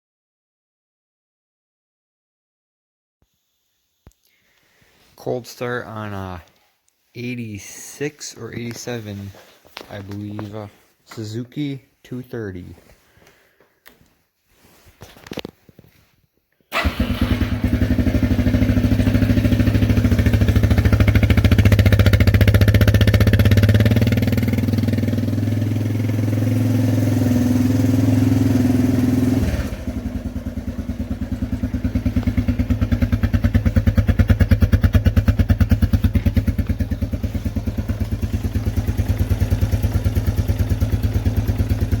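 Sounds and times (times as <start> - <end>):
motorcycle engine idling: 16.7 - 42.0.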